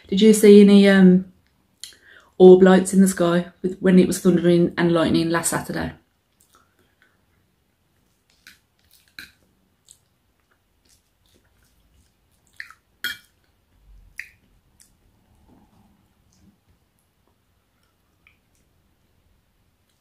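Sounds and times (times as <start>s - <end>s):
person chewing with mouth clicks: 6.3s - 7.2s, 8.0s - 17.1s.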